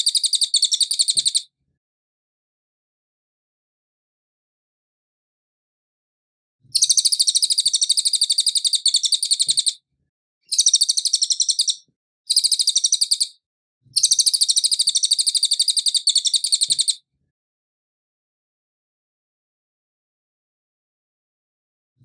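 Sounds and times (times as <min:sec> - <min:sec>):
bird singing fast trills: 0:00.0 - 0:01.5, 0:06.8 - 0:09.8, 0:10.5 - 0:13.4, 0:14.0 - 0:17.0.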